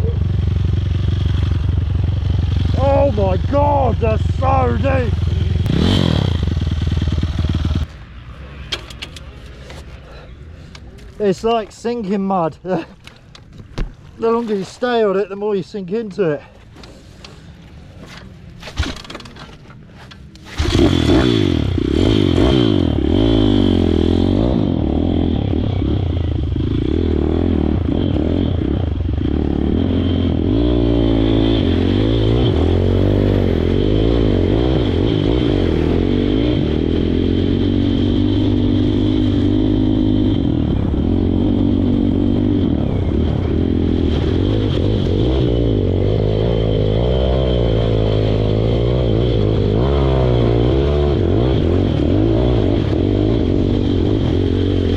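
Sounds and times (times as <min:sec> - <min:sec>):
pit bike engine revving: 0:00.0 - 0:07.9, 0:20.4 - 0:54.9.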